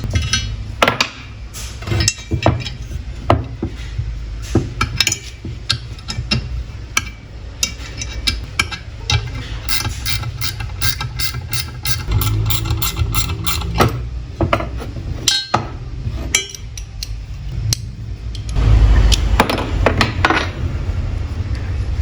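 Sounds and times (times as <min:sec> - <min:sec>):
hand tool clicking on metal: 0:08.2 - 0:13.9.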